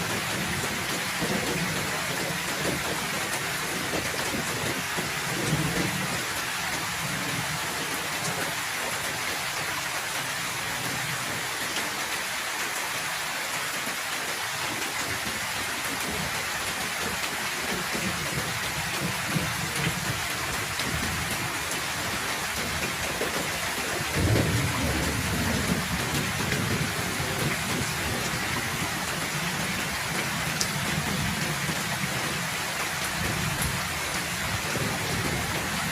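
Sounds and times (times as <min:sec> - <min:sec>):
heavy rain pouring: 0:00.0 - 0:35.9
thunder rumbling: 0:23.4 - 0:32.4.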